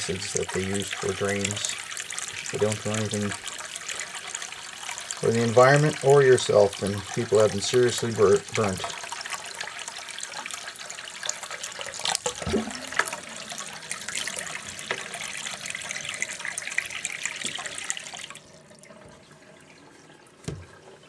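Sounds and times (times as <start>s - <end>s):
tap water running into sink: 0.0s - 21.0s
knocks: 20.5s - 20.7s.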